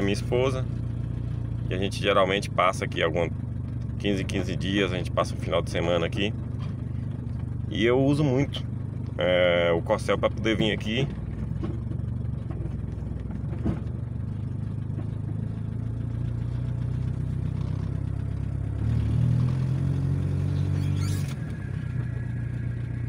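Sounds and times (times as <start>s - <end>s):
car engine running: 0.0s - 23.0s
tyre and road noise: 0.0s - 23.0s.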